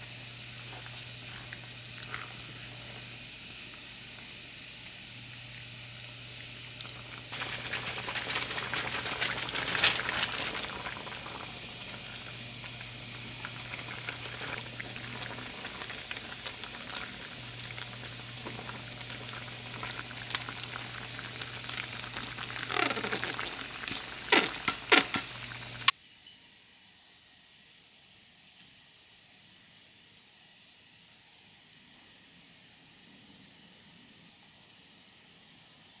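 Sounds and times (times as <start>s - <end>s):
food bubbling and sizzling: 0.0s - 25.9s
low electrical hum: 0.0s - 26.2s.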